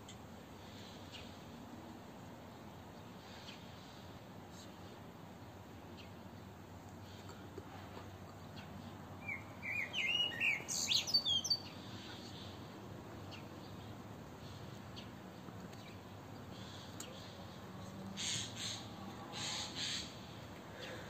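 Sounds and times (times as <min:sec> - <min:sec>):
faint outdoor hiss: 0:00.0 - 0:21.0
songbird chirping: 0:00.0 - 0:21.0.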